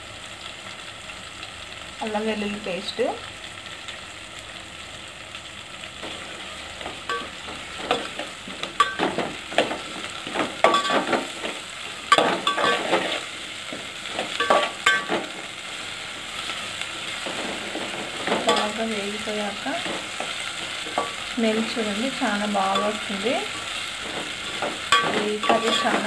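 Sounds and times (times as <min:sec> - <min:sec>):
food sizzling in hot oil: 0:00.0 - 0:26.0
metal spatula scraping a pot: 0:10.6 - 0:13.3, 0:22.7 - 0:26.0.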